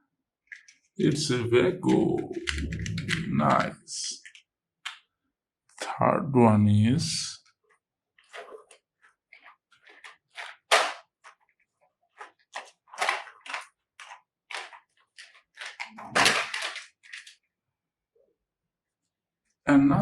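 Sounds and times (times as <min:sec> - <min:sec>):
plastic toys clacking: 0:00.4 - 0:05.1, 0:08.2 - 0:17.5.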